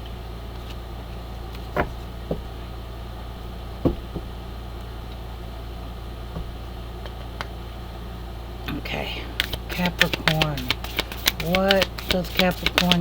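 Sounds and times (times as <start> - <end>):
steady low hum: 0.0 - 13.0
soft knocks and taps: 3.8 - 4.3, 6.3 - 6.6.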